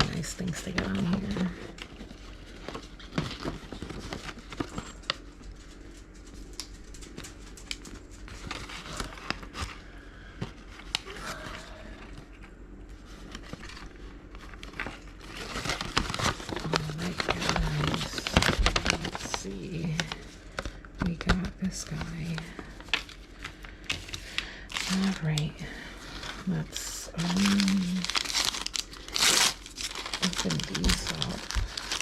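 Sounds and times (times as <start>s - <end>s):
packaging crinkling and rustling: 0.0s - 32.0s.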